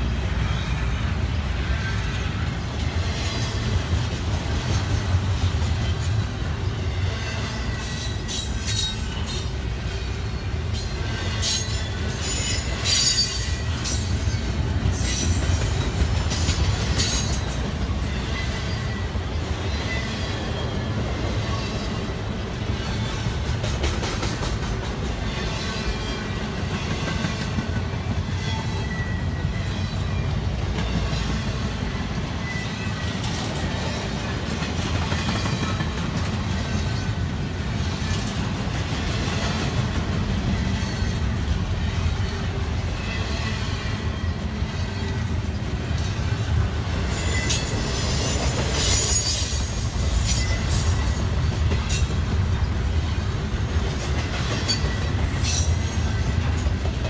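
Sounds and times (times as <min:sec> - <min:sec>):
steel wheels rumbling on rail: 0:00.0 - 0:57.0
faint high wheel squeal: 0:28.4 - 0:30.3, 0:32.2 - 0:33.1, 0:47.0 - 0:51.3.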